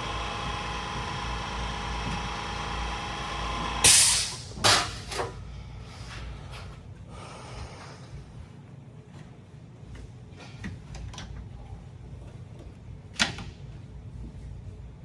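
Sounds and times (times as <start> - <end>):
loud blast of air: 3.8 - 4.8.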